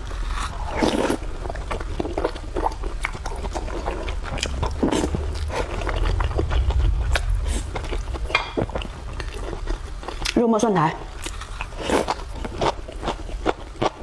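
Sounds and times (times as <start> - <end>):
steady low hum: 0.0 - 14.0
person chewing and biting: 11.1 - 14.0.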